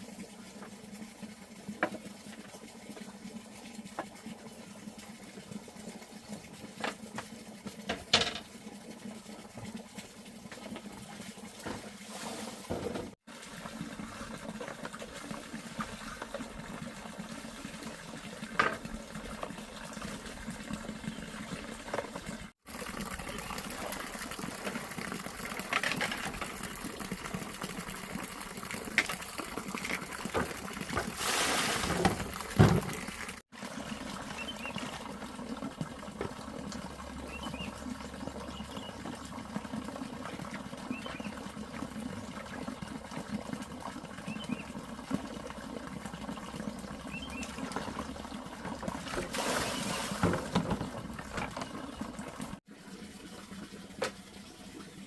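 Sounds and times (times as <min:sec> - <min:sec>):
water running and splashing: 0:00.0 - 0:55.0.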